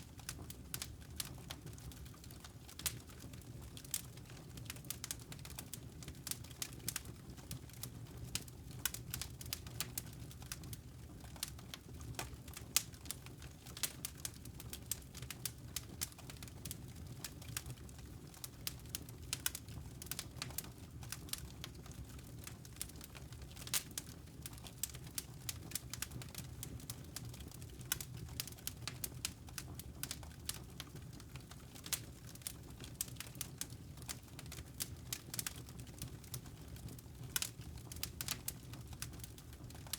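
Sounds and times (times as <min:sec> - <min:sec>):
fire crackling and popping: 0:00.0 - 0:39.9
low rumble of burning fire: 0:00.0 - 0:39.9.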